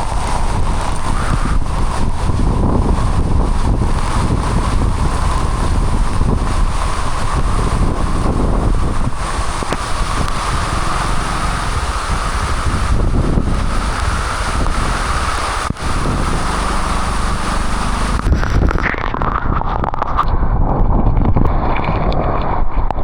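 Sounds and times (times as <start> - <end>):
heavy rain: 0.0 - 20.2
wind buffeting microphone: 0.0 - 23.0.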